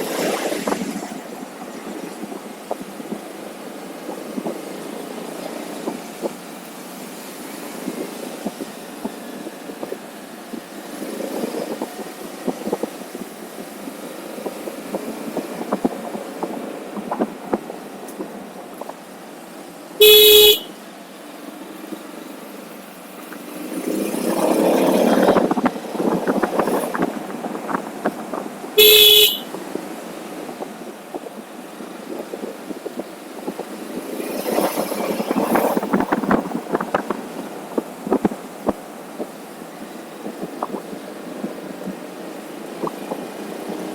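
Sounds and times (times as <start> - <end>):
motorcycle road and wind noise: 0.0 - 43.9
vehicle horn beeps: 20.0 - 20.8, 28.8 - 29.6.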